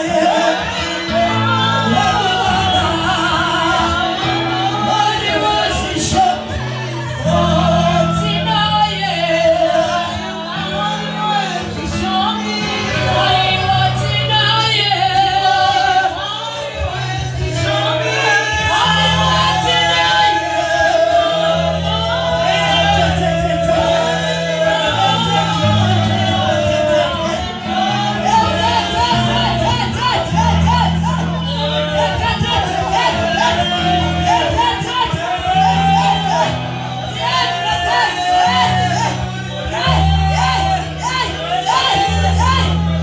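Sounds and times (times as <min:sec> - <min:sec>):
congregation singing gospel: 0:00.0 - 0:43.0
bass accompaniment: 0:16.8 - 0:43.0.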